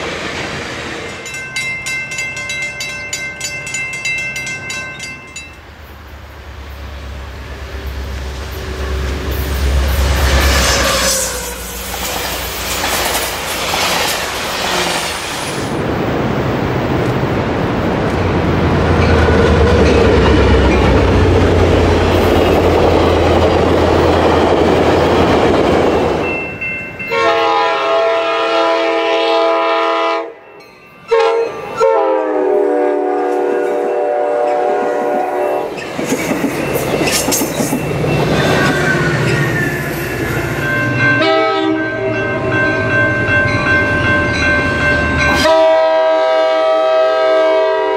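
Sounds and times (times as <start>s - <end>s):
train rumbling past: 0.0s - 47.9s
locomotive air horn: 10.2s - 11.9s, 27.1s - 30.4s, 31.1s - 35.7s, 41.2s - 42.2s, 45.3s - 47.9s.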